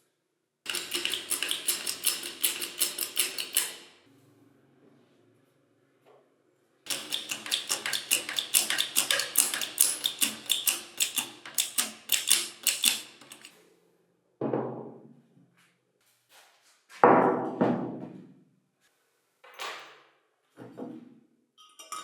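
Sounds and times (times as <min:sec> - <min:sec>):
tools clicking on metal parts: 0:00.7 - 0:03.9, 0:06.9 - 0:13.5.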